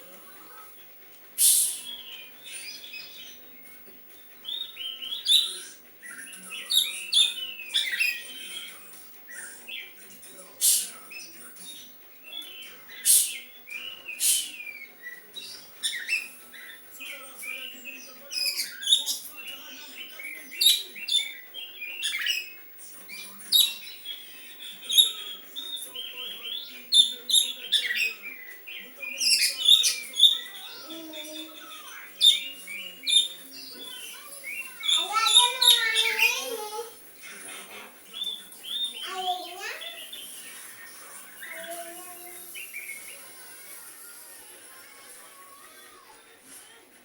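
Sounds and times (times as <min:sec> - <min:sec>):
bird singing chirps and whistles: 0:12.4 - 0:16.4, 0:24.9 - 0:30.5.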